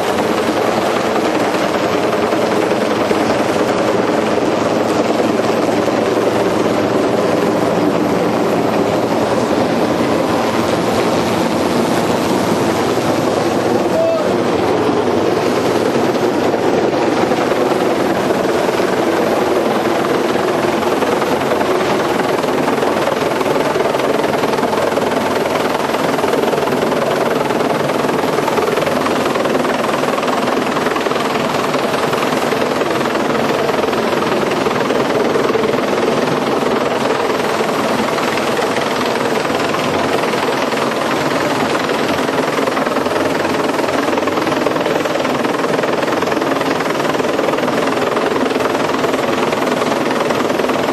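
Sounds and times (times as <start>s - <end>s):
helicopter engine and rotor: 0.0s - 50.9s.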